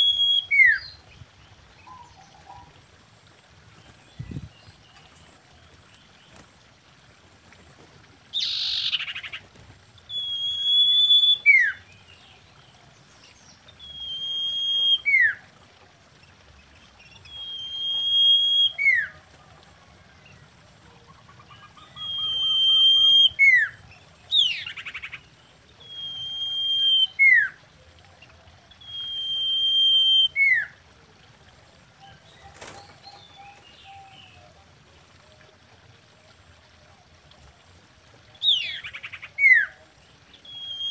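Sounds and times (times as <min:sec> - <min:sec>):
bird whistling song: 0:00.0 - 0:01.0, 0:08.4 - 0:09.4, 0:10.1 - 0:11.9, 0:13.7 - 0:15.4, 0:17.2 - 0:19.1, 0:21.5 - 0:25.2, 0:25.8 - 0:27.6, 0:28.8 - 0:30.8, 0:38.4 - 0:40.9.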